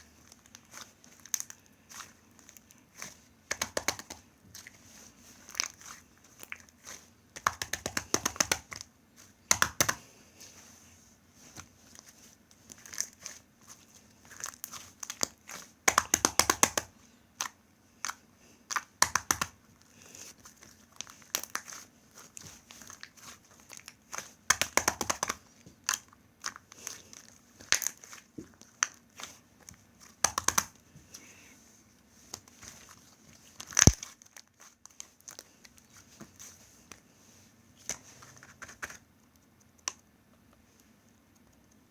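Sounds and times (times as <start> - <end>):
crackling air pops: 33.8 - 34.0.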